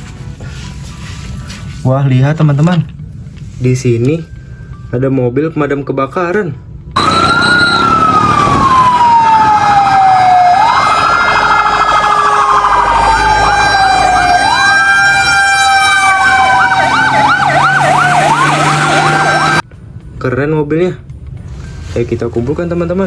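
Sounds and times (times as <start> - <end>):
fire engine siren wailing: 7.0 - 19.6
warbling siren: 7.0 - 19.6.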